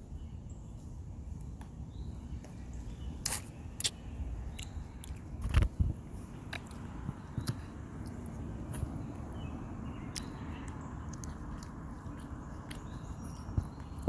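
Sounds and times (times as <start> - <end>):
eating noises: 6.5 - 14.0.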